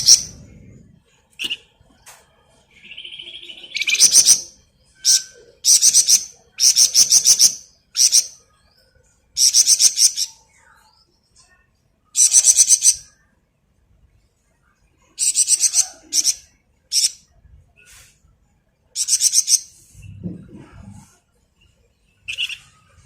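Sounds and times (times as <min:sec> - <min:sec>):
songbird rattling song: 0:00.0 - 0:02.0, 0:02.7 - 0:08.4, 0:09.3 - 0:10.4, 0:12.1 - 0:13.2, 0:15.0 - 0:18.0, 0:18.9 - 0:23.0.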